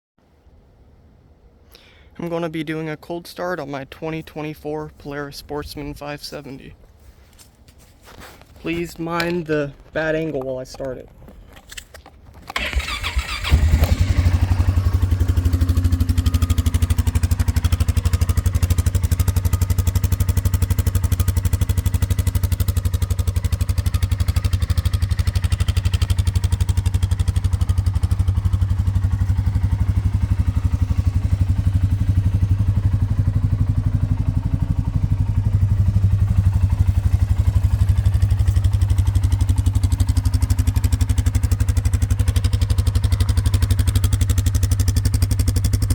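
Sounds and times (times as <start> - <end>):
engine cranking and idling: 12.4 - 45.9.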